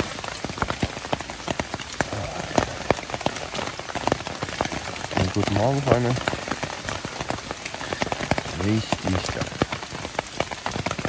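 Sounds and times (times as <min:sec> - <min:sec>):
heavy raindrops striking: 0:00.0 - 0:11.0
steady hiss of rain: 0:00.0 - 0:11.0.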